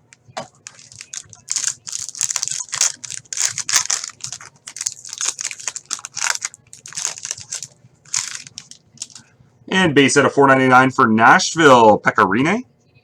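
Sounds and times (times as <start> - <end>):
plastic packaging crinkling: 0.1 - 9.3.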